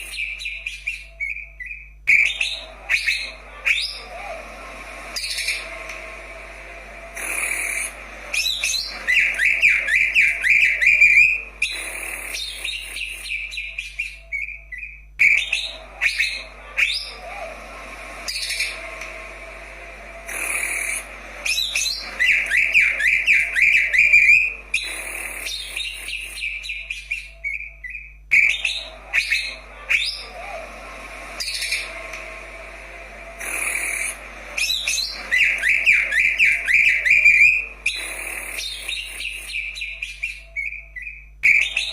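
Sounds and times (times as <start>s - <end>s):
bird singing whistles and trills: 0.0s - 4.3s, 7.2s - 17.5s, 20.3s - 30.6s, 33.4s - 41.9s.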